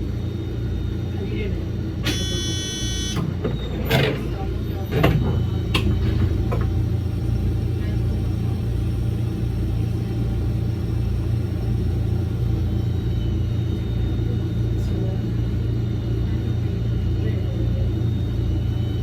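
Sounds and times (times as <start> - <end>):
faint high whine: 2.0 - 3.2
electric train rumbling: 3.2 - 19.0.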